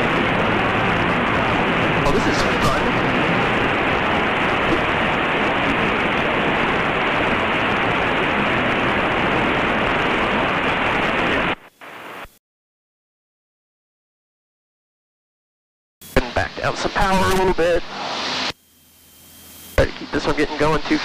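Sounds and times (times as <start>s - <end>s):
plane engine cabin noise: 0.0s - 12.4s
intercom hiss: 2.0s - 3.4s, 16.0s - 18.6s, 19.7s - 21.0s.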